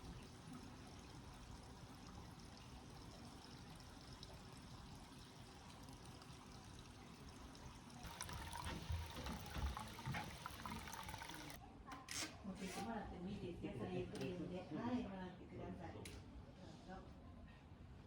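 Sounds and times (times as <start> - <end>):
water running and trickling: 0.0 - 11.6
knocks and splashes: 8.0 - 11.6.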